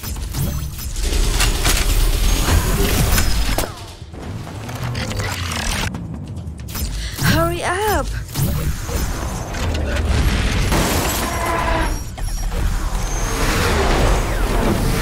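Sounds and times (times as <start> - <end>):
mechanical whirring and clanking: 0.0 - 7.2, 8.2 - 15.0.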